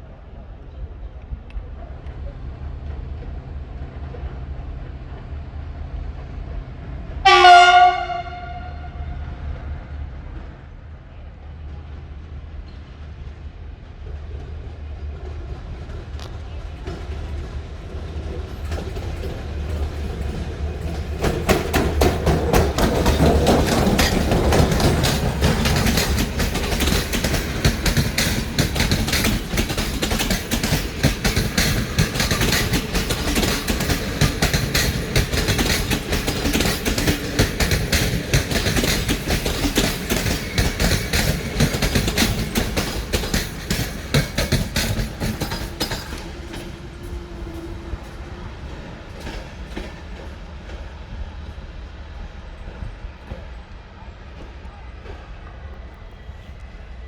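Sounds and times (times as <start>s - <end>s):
train wheels clicking over rail joints: 15.2s - 50.9s.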